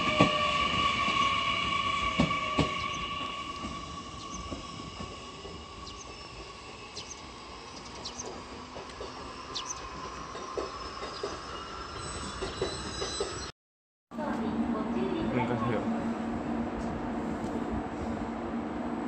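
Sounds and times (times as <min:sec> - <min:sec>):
steady train whine: 0:00.0 - 0:13.5, 0:14.1 - 0:19.0
train wheels rumbling on rails: 0:00.0 - 0:13.5.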